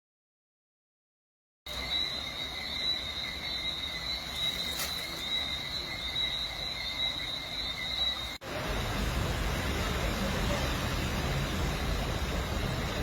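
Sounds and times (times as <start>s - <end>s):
high insect trill: 1.7s - 8.4s
low background rush: 1.7s - 13.0s.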